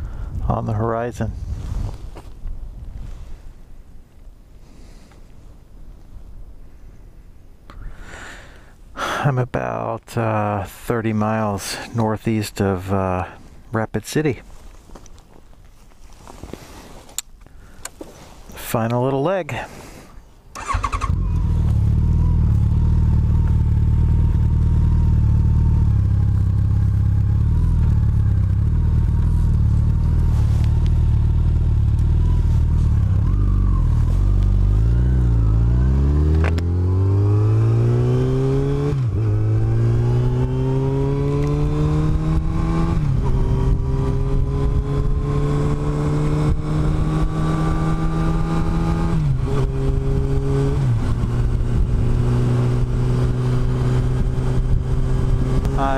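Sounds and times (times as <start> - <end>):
motorcycle engine accelerating: 20.6 - 55.9.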